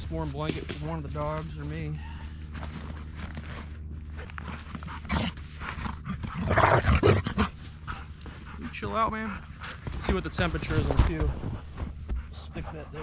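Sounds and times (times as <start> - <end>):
dog barking and growling: 4.2 - 8.9.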